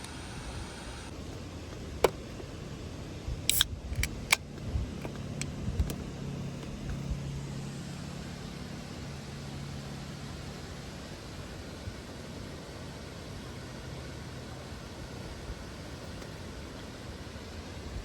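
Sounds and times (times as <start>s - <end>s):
low steady hum: 0.0s - 18.0s
sharp clicks: 3.5s - 6.0s.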